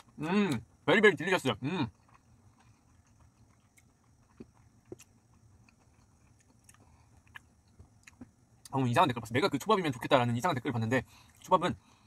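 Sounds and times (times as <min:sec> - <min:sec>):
chewing mouth clicks: 0:01.9 - 0:08.8.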